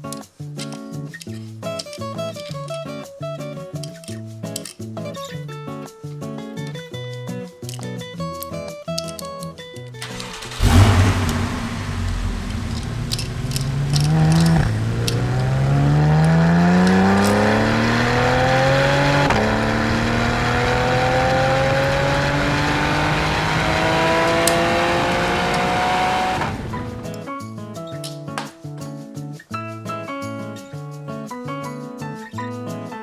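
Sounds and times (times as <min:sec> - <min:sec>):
sports car engine accelerating: 0:10.0 - 0:27.2.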